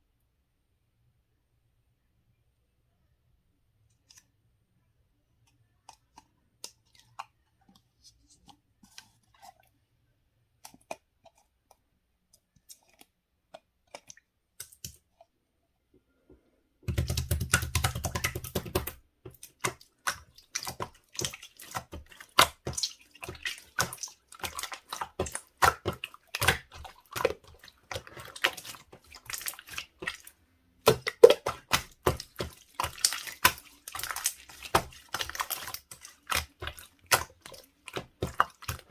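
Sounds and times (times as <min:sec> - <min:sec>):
slime wet crackling and pops: 0:16.9 - 0:38.9.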